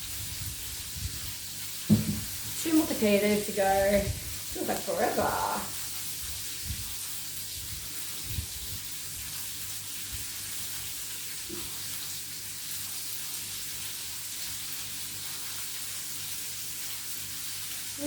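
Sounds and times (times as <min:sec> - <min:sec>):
chicken sizzling in oil: 0:00.0 - 0:18.0
soft knocks: 0:01.9 - 0:02.4.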